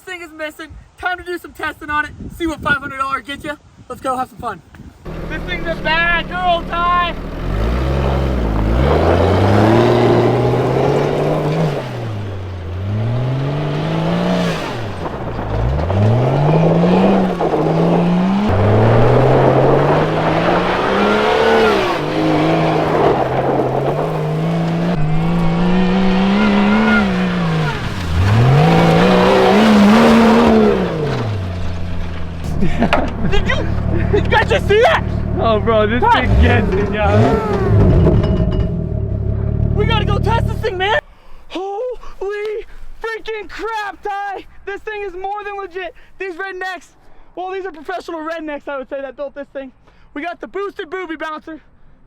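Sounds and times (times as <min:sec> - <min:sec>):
car engine revving hard: 0:05.1 - 0:41.0.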